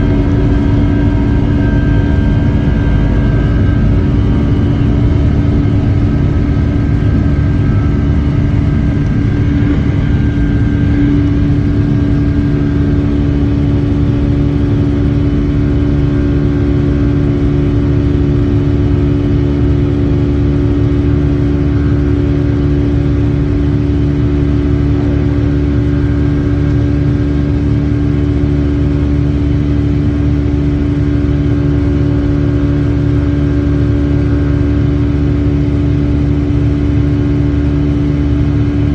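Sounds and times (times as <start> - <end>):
jet engine whines: 0.0 - 38.9
jet engines rumbling in cabin: 0.0 - 38.9.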